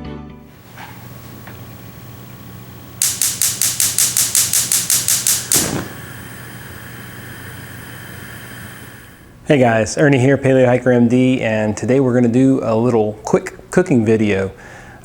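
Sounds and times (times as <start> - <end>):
rapid sharp clicks: 3.0 - 6.0.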